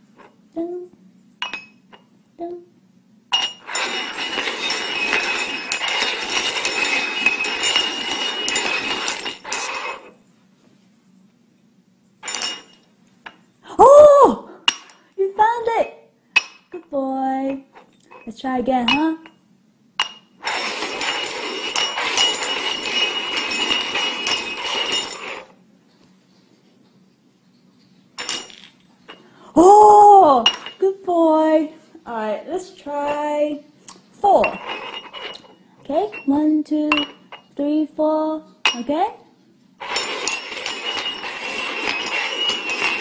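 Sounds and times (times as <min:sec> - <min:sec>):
cups scraping on hard surface: 0:03.4 - 0:10.2, 0:20.4 - 0:25.6, 0:34.4 - 0:37.5, 0:39.8 - 0:43.0
containers clinking and knocking: 0:39.8 - 0:43.0
small jingle bell ringing: 0:39.8 - 0:43.0.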